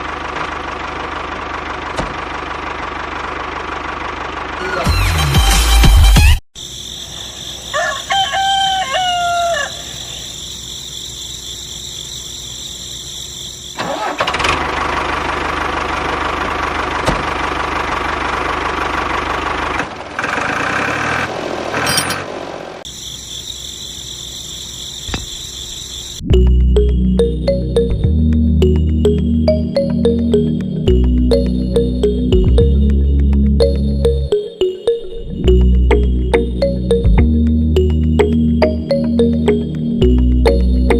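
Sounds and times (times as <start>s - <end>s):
rooster crowing: 7.4s - 10.3s.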